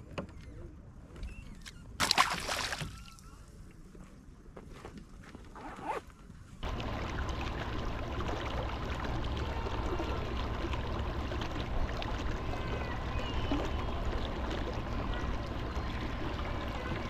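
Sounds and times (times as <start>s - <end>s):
trickling water: 6.6s - 17.0s.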